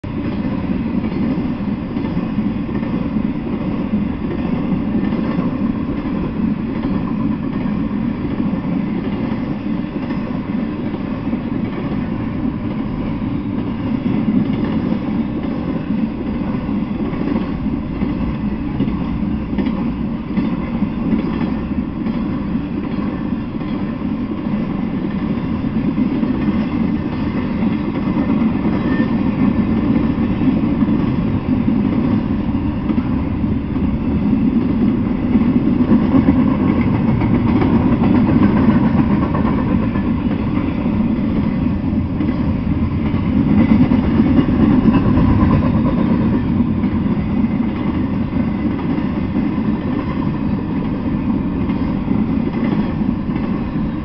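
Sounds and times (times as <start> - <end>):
train wheels rolling on rails: 0.0 - 54.0.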